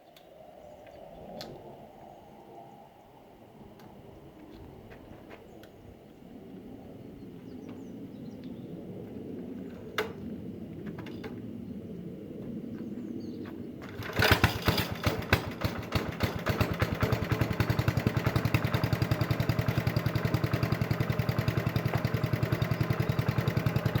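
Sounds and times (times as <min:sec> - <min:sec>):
engine starting and idling: 0:13.8 - 0:24.0.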